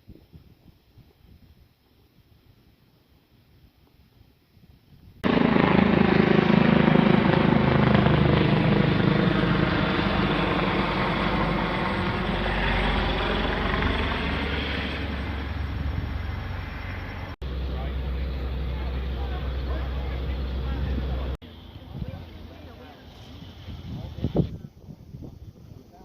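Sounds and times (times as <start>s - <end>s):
helicopter rotor and engine: 5.2s - 23.4s.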